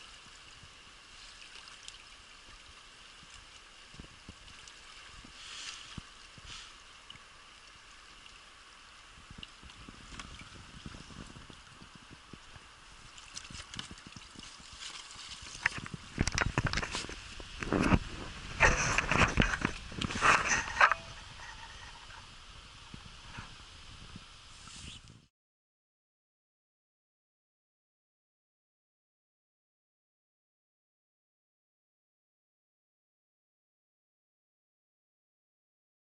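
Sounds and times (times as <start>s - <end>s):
rushing river water: 0.0s - 25.1s.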